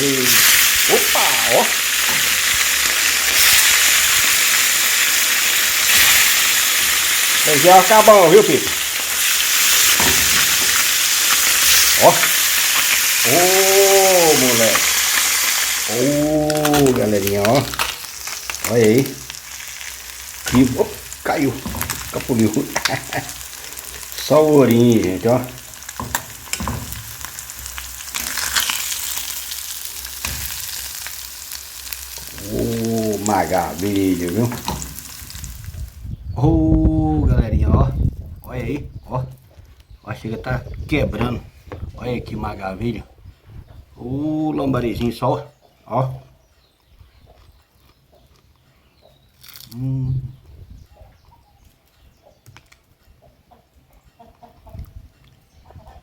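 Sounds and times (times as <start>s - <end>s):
fish sizzling in hot oil: 0.0s - 36.0s
chickens clucking: 44.9s - 49.2s, 50.2s - 56.0s.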